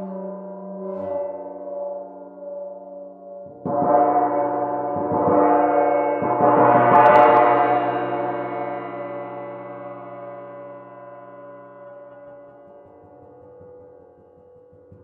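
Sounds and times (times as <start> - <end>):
gong struck: 3.7 - 13.8.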